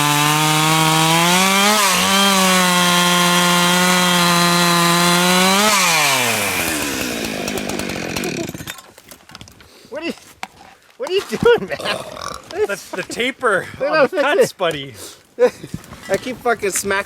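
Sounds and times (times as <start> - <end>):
chainsaw cutting through log: 0.0 - 8.8.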